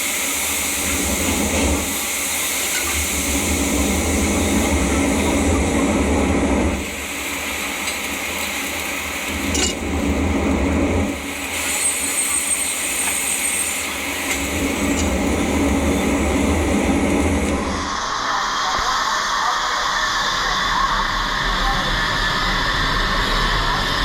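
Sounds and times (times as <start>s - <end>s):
arc welding crackling hiss: 0.0s - 17.8s.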